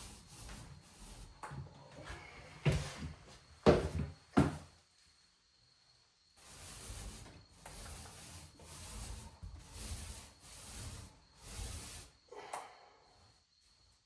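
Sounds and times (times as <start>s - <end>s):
rubbing strokes against surface: 0.0s - 1.4s, 6.4s - 12.2s.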